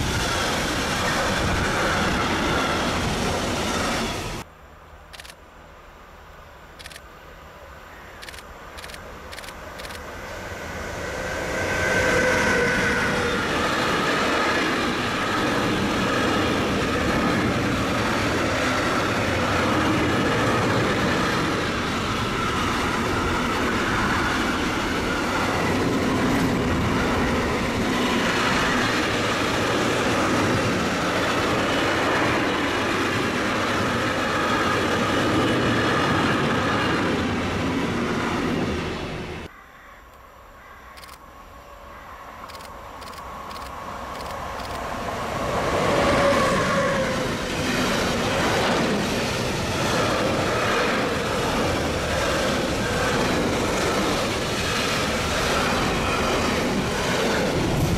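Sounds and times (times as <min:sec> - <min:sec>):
electric locomotive whine: 0:00.0 - 0:04.5, 0:06.8 - 0:57.9
freight wagons rumbling over rails: 0:45.2 - 0:57.9.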